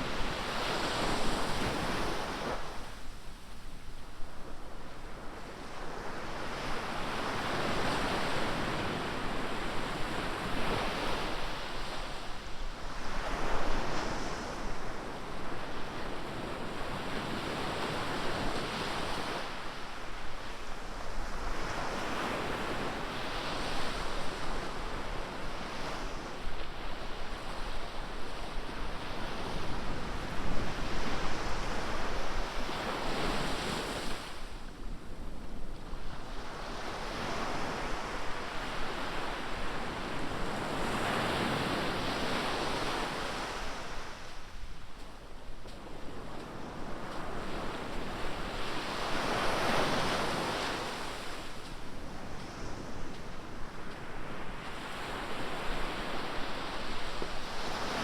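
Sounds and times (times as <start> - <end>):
wind on microphone: 20.3 - 58.0
waves breaking on beach: 36.1 - 58.0.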